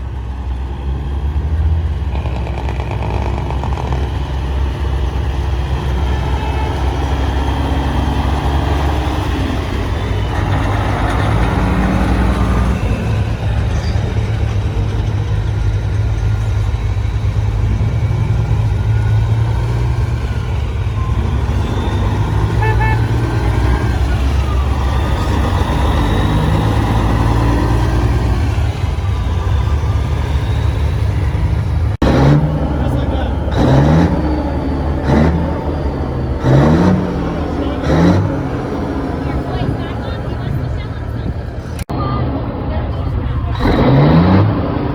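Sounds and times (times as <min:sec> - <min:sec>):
engine note rising and falling: 0:00.0 - 0:44.9
truck engines rumbling: 0:00.0 - 0:44.9
voices in background: 0:36.8 - 0:44.9.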